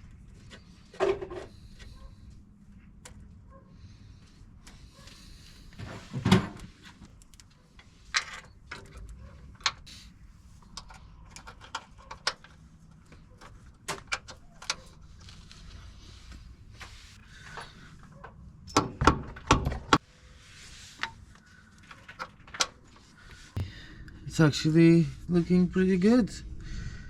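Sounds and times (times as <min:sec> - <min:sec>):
tools and metal parts clattering: 0:08.0 - 0:09.9, 0:17.4 - 0:20.0.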